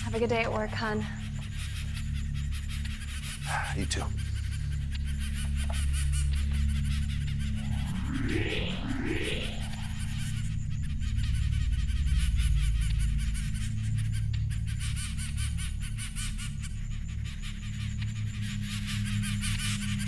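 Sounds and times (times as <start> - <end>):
small birds chirping rapidly: 0.0 - 7.7
low musical drone: 0.0 - 11.7.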